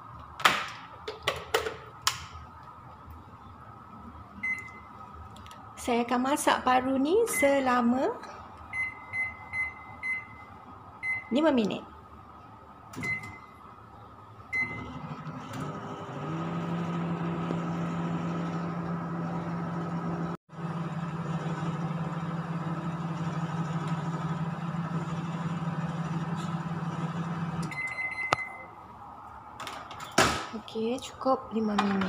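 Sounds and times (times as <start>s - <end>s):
microwave keypad beeps: 4.4s - 4.9s, 7.2s - 7.7s, 8.7s - 11.3s, 13.0s - 13.5s, 14.5s - 15.0s, 27.7s - 28.8s
microwave humming: 12.2s - 29.0s.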